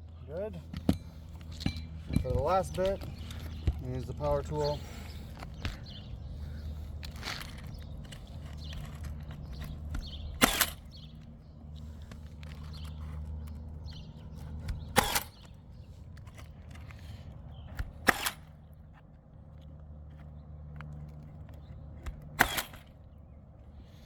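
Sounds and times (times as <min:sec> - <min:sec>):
nail gun firing: 0:10.3 - 0:11.0, 0:14.6 - 0:15.5, 0:17.8 - 0:18.5, 0:22.0 - 0:23.0.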